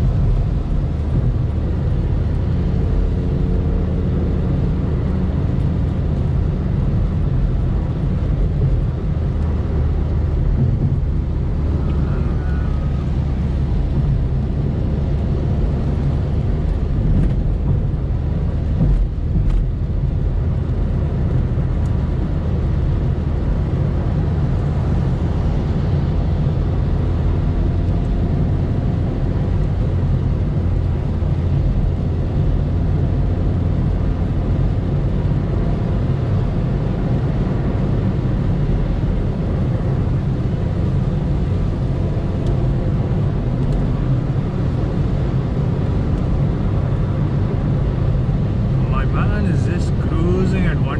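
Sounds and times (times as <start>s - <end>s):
car engine drone: 0.0s - 50.9s
tyre and road noise: 0.0s - 50.9s.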